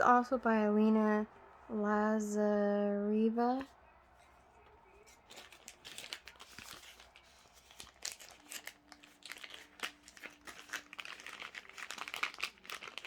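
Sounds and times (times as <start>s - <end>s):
crinkly plastic packaging handled: 5.0s - 13.0s.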